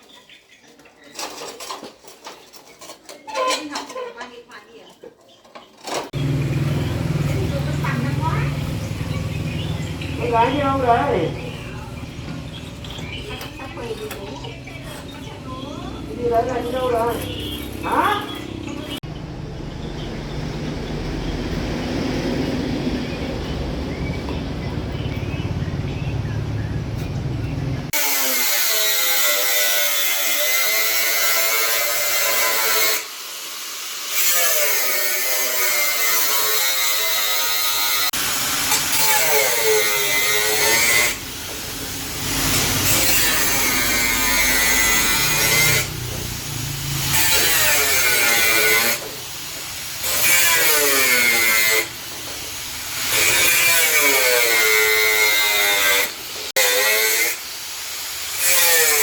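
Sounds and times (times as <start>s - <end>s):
electric power tool running: 6.1s - 19.0s, 35.1s - 56.6s.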